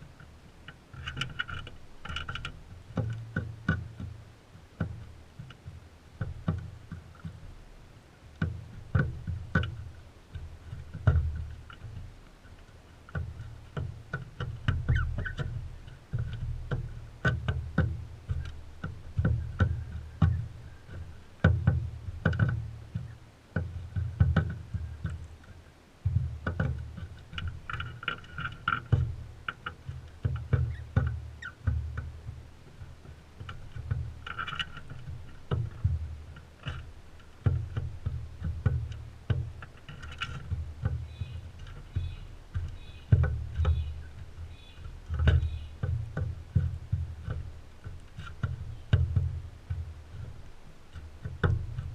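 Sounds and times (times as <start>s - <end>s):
beaks and feet tapping on feeder: 0.0s - 51.9s
faint bird calls: 14.8s - 17.2s, 30.5s - 31.7s, 40.9s - 46.0s.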